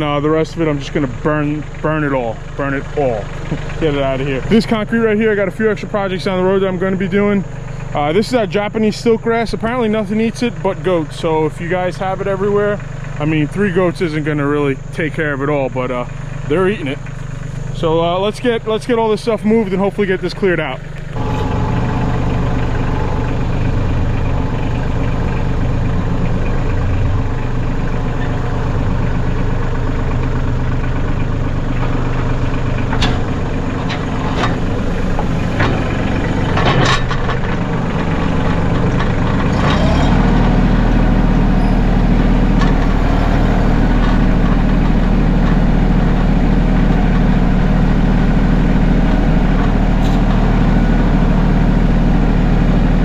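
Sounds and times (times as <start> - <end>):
tractor diesel engine running: 0.0 - 53.0
sharp knocks and clunks: 32.9 - 40.4.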